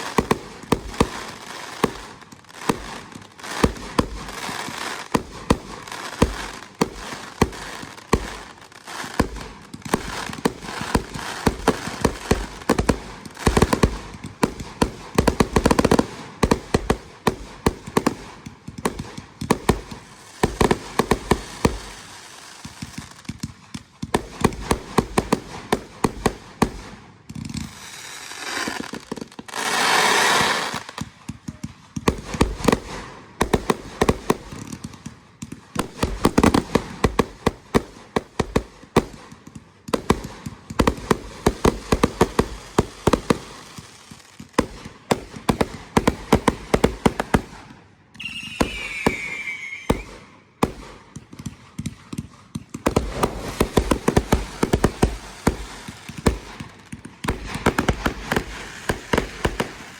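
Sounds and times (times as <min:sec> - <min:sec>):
fireworks cracking and popping: 0:00.0 - 0:59.9
firework rushing hiss: 0:27.8 - 0:30.9, 0:48.2 - 0:50.8, 0:52.9 - 0:56.6
firework falling whistle: 0:48.1 - 0:50.4.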